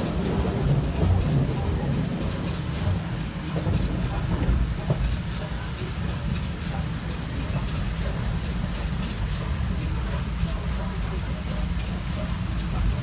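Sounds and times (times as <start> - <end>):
rail clicks: 0.0 - 6.8
train wheels rumbling on track: 0.0 - 13.0.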